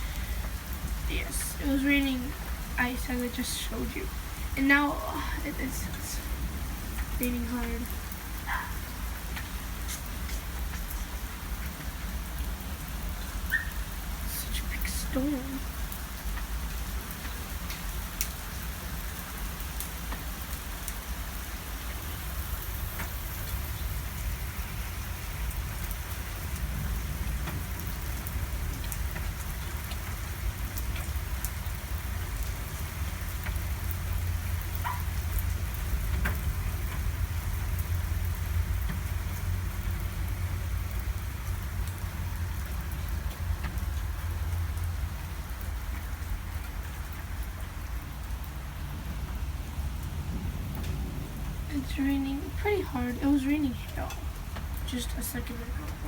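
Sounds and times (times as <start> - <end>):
heavy rain pouring: 0.0 - 56.0
raindrops ticking: 0.0 - 56.0.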